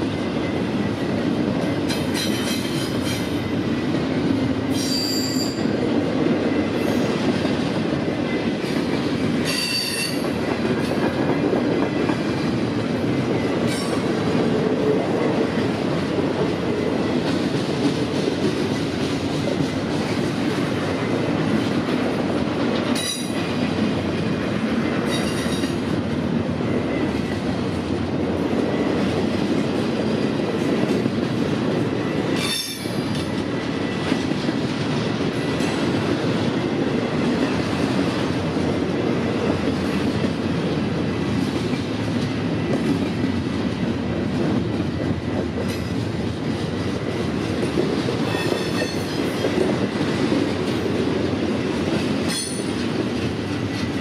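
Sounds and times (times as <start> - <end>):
train wheels rumbling on rails: 0.0 - 54.0
high-pitched wheel squeals: 4.8 - 5.6.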